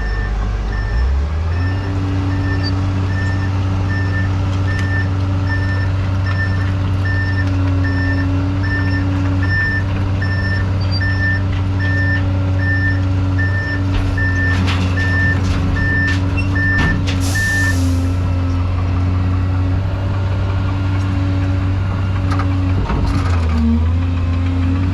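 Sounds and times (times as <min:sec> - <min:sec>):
vehicle back-up alarm beeping: 0:00.0 - 0:18.4
diesel engine drone: 0:00.0 - 0:24.9.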